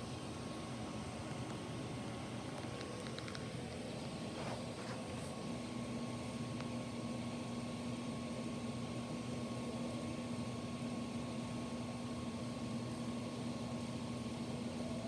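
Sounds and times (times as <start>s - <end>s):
mechanical hum and hiss: 0.0s - 15.0s.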